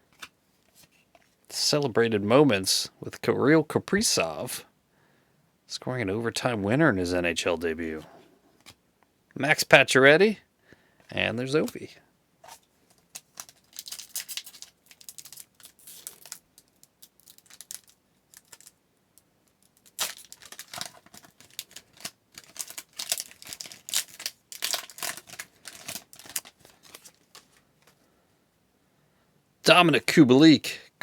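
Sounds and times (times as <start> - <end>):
card pack wrapper tearing: 13.0 - 18.7, 19.6 - 27.6.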